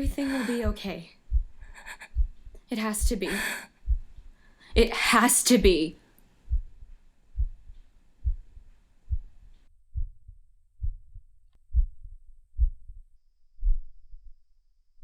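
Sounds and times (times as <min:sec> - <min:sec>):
heartbeat thumps: 0:00.0 - 0:05.8, 0:06.5 - 0:14.4
faint background hiss: 0:00.0 - 0:09.7.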